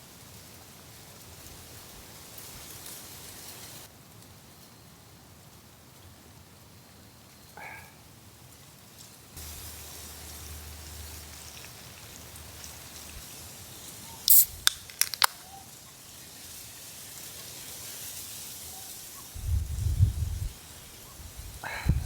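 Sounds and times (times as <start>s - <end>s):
campfire crackling and popping: 9.4s - 15.6s.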